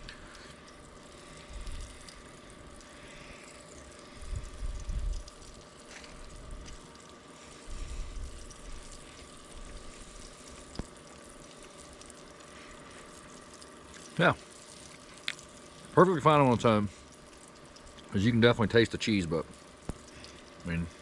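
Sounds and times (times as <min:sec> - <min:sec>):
hot dogs sizzling in skillet: 0:00.0 - 0:16.0, 0:19.5 - 0:20.9
low rumbles on microphone: 0:04.2 - 0:05.2.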